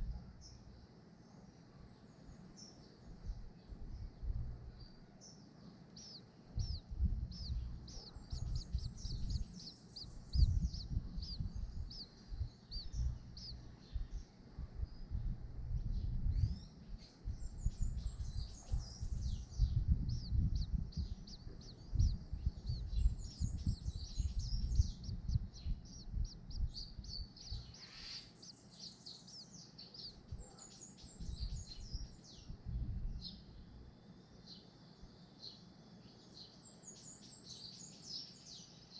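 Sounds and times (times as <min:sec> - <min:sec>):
birds chirping: 0:00.0 - 0:38.9
low uneven rumble: 0:03.0 - 0:05.1, 0:05.7 - 0:27.7, 0:31.2 - 0:33.9.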